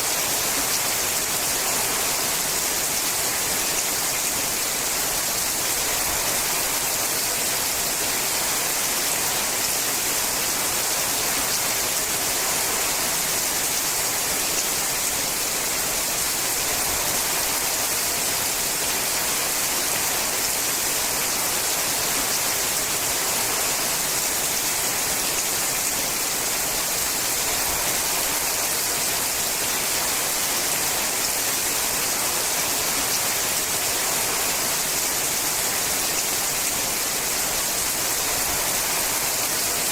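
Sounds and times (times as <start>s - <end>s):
rain on a metal roof: 0.0s - 39.9s.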